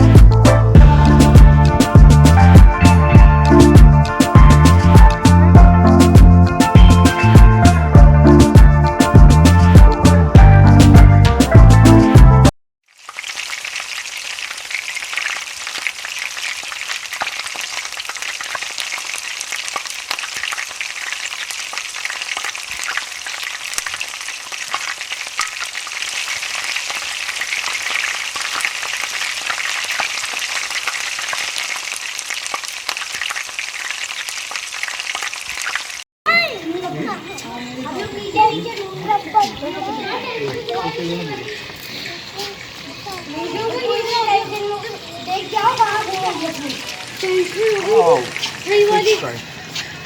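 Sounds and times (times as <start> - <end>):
fish sizzling and popping: 12.8 - 36.1, 40.5 - 50.0.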